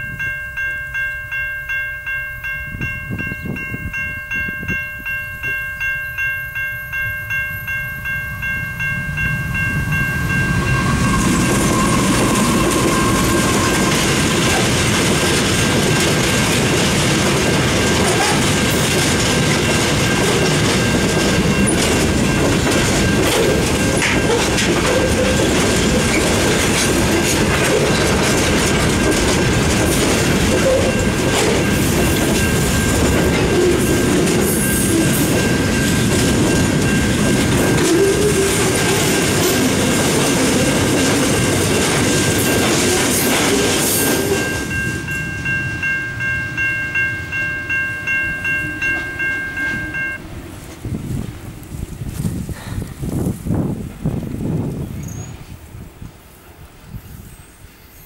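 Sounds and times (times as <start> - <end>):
level crossing bell ringing: 0.0 - 26.1, 27.1 - 50.2
freight train wagons rumbling: 6.5 - 57.6
wheels clacking over rail joints: 9.8 - 46.6.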